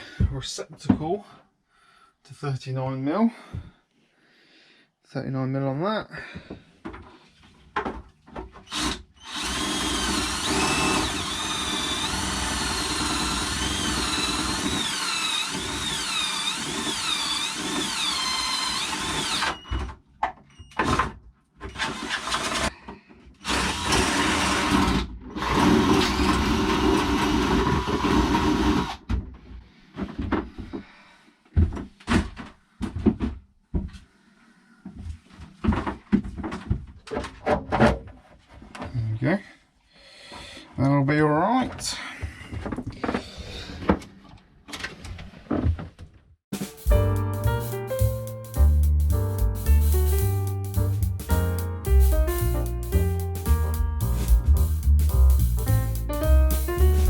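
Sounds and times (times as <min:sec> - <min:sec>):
power drill whining: 0:08.6 - 0:19.9, 0:21.7 - 0:22.7, 0:23.4 - 0:29.0.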